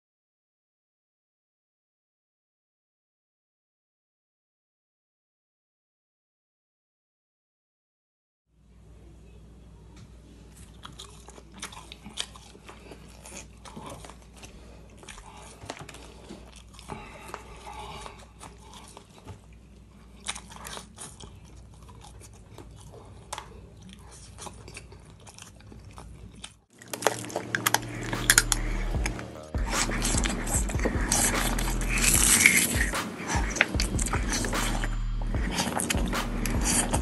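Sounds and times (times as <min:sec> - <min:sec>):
faint low hum: 0:08.6 - 0:37.0
chewing crunchy food: 0:10.4 - 0:37.0
wet mouth sounds: 0:10.6 - 0:37.0
loud intro music: 0:27.5 - 0:37.0.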